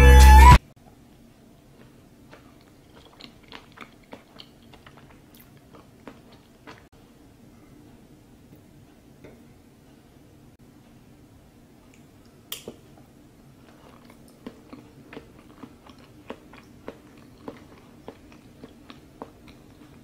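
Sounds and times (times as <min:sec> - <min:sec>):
faint chewing: 0:01.6 - 0:06.9, 0:11.8 - 0:20.0.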